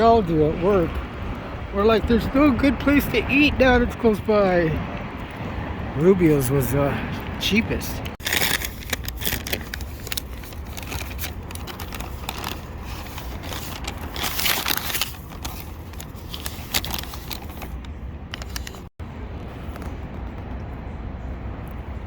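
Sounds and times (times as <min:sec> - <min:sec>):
steady low rumble: 0:04.6 - 0:22.0
handling noise rustling and clicks: 0:08.2 - 0:18.9.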